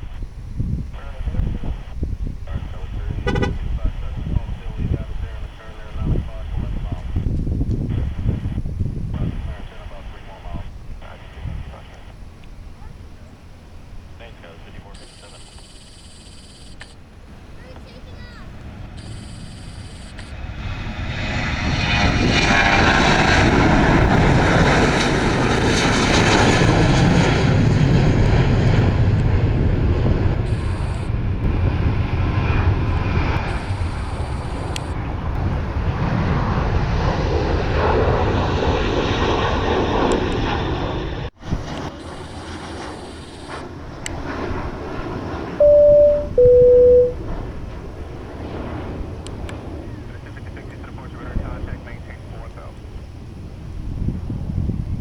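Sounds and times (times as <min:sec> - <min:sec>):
jet engines passing: 0:00.0 - 0:55.0
short electronic beeps: 0:03.3 - 0:03.6, 0:15.0 - 0:17.0, 0:19.0 - 0:20.3, 0:45.6 - 0:47.2.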